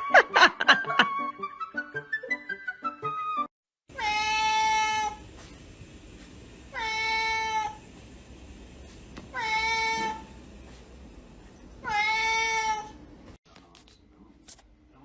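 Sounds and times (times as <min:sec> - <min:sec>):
cat meowing: 0:03.9 - 0:05.2, 0:06.7 - 0:07.8, 0:09.3 - 0:10.4, 0:11.8 - 0:13.0.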